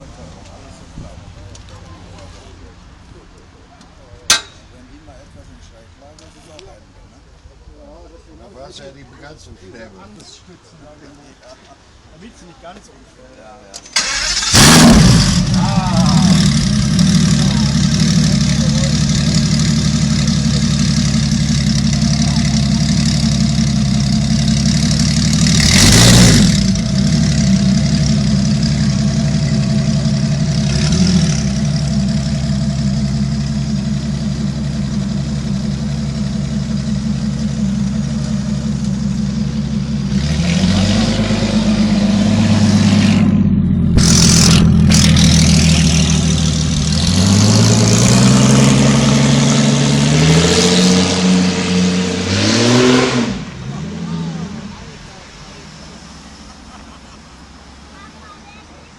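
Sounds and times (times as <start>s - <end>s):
motorbike engine idling and revving: 14.1s - 57.9s.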